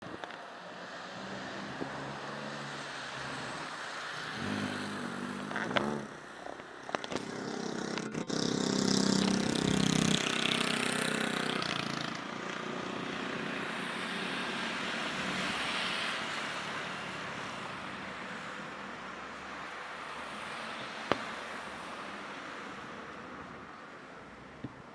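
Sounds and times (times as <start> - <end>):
motor engine revving: 1.0 - 14.1.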